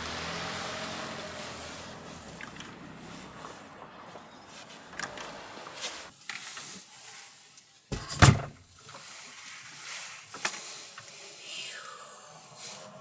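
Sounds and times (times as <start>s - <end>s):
low vehicle rumble: 0.0s - 6.1s
door shutting with heavy thud: 7.9s - 8.6s.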